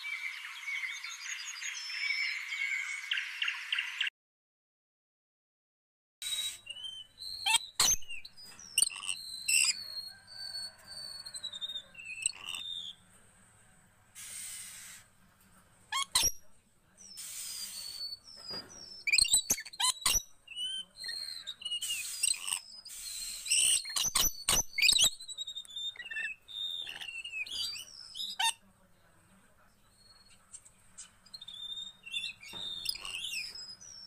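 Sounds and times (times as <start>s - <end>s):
birds chirping and whistling: 0.0s - 4.1s, 6.2s - 13.0s, 17.0s - 28.6s, 29.9s - 34.0s.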